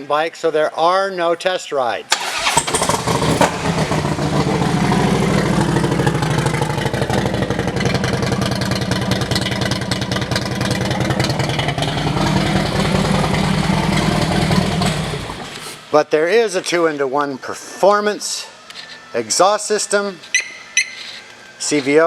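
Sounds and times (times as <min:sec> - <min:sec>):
motorcycle engine starting and idling: 0:02.1 - 0:15.9.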